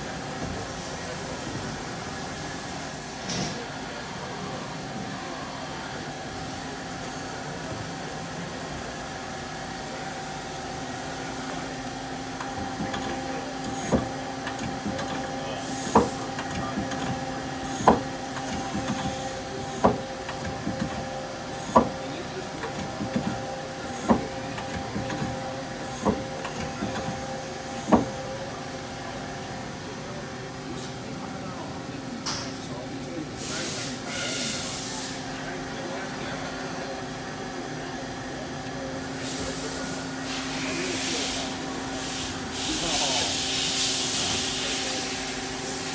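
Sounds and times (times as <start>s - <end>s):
lathe humming: 8.5s - 32.0s
sharp clunks: 27.8s - 28.2s.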